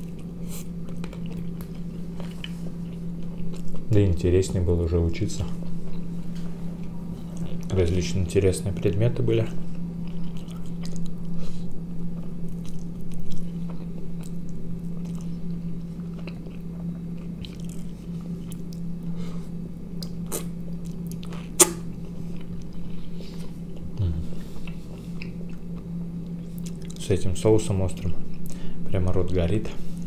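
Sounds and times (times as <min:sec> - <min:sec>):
steady low hum: 0:00.0 - 0:30.0
man chewing wet clicks: 0:09.7 - 0:11.3, 0:12.0 - 0:19.0, 0:19.9 - 0:22.8, 0:24.6 - 0:27.0.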